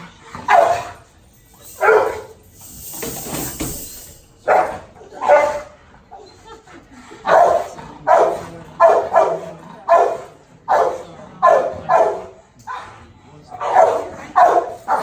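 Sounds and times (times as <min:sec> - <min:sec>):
dog barking: 0:00.4 - 0:01.0, 0:01.7 - 0:02.4, 0:04.4 - 0:05.8, 0:07.2 - 0:12.8, 0:13.6 - 0:15.0.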